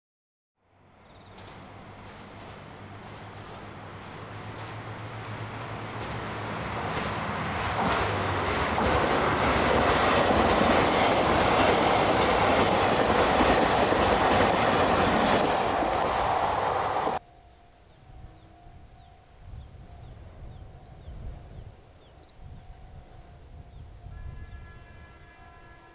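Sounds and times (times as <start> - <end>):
train wheels clattering over rails: 1.3 - 17.2.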